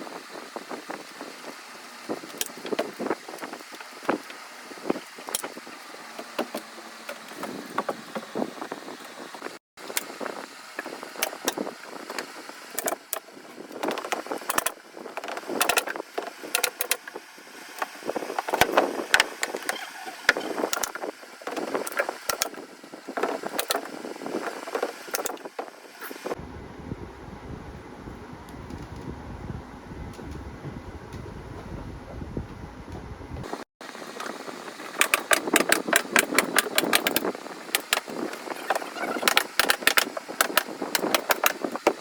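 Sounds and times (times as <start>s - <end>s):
sharp clicks and knocks: 34.2s - 42.0s.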